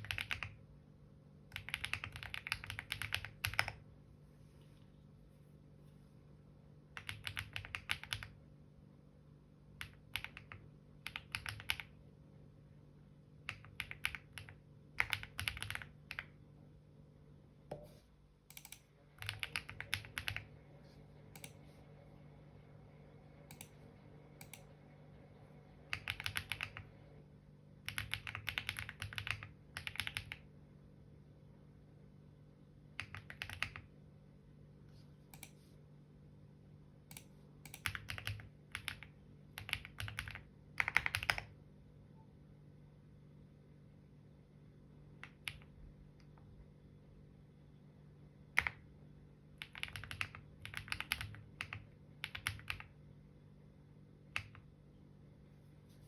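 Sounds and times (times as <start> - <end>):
typing on keyboard: 0.0 - 0.6, 1.5 - 3.8, 7.0 - 8.4, 9.7 - 12.0, 13.4 - 16.4, 18.5 - 20.5, 25.9 - 26.9, 27.9 - 30.5, 33.0 - 33.9, 37.1 - 41.6, 45.2 - 45.8, 48.5 - 48.9, 49.6 - 53.0, 54.4 - 54.7
faint low hum: 0.0 - 56.0.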